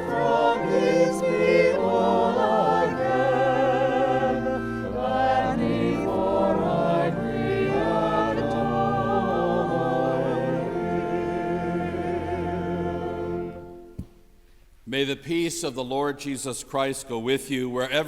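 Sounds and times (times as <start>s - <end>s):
choir singing in parts: 0.0s - 14.0s.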